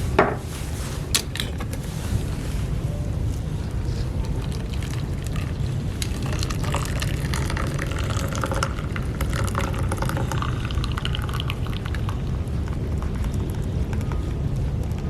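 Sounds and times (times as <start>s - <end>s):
liquid pouring and splashing: 4.3s - 14.0s.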